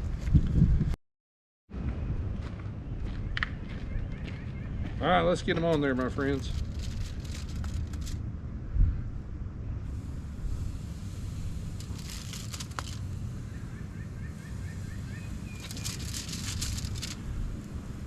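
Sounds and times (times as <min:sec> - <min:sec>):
wind rumble on microphone: 0:00.0 - 0:01.0, 0:06.4 - 0:13.7
bird chirping: 0:13.4 - 0:17.0.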